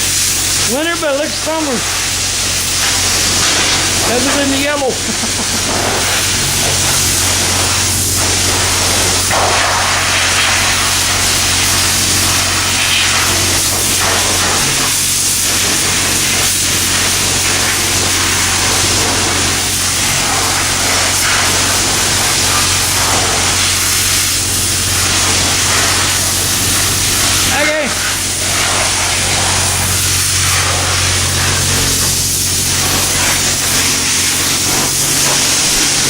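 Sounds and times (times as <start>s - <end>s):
pressure washer spraying water: 0.0s - 36.0s.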